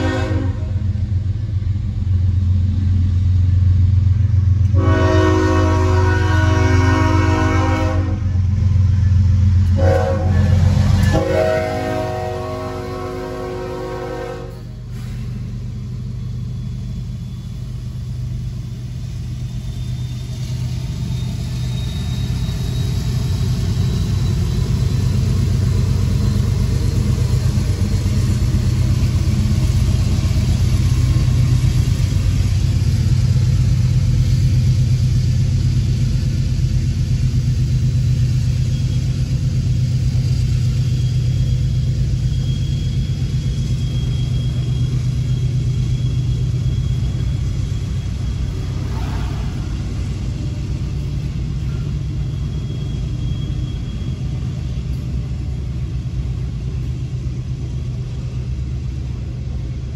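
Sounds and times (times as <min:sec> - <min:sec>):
train horn: 0:00.0 - 0:00.9, 0:04.7 - 0:08.4, 0:09.7 - 0:14.8, 0:48.7 - 0:49.9
freight train rumbling past: 0:00.0 - 0:59.9.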